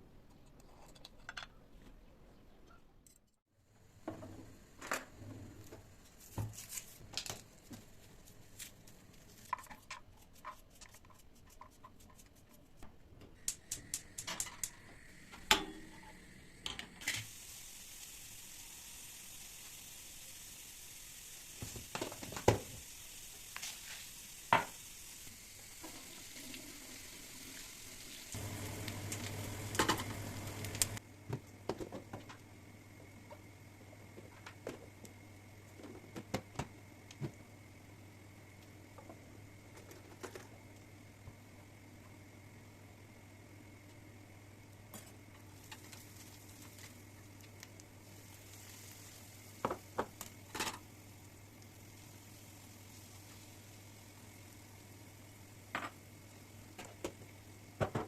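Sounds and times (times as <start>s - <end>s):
food sizzling: 13.4s - 31.0s, 45.3s - 58.0s.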